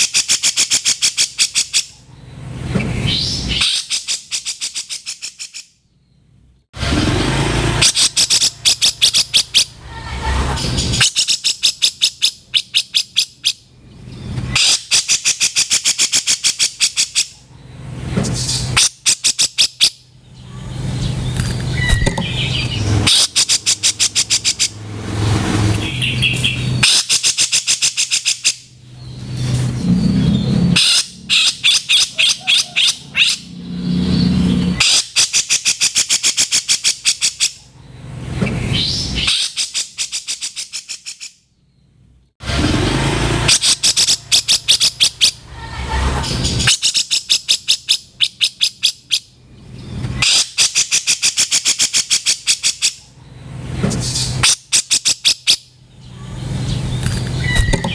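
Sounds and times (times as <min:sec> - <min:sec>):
bulbul harsh calls: 0:07.6 - 0:13.7, 0:18.4 - 0:37.7, 0:42.8 - 0:49.4.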